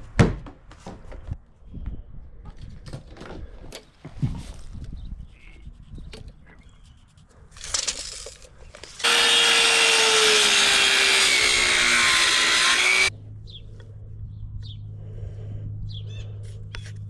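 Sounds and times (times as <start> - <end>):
power saw cutting wood: 9.0 - 13.1.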